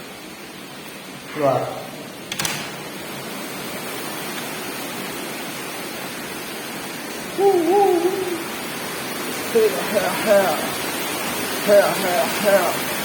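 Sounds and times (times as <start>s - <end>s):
steady rain: 0.0s - 13.0s
short wavering call: 7.3s - 8.7s.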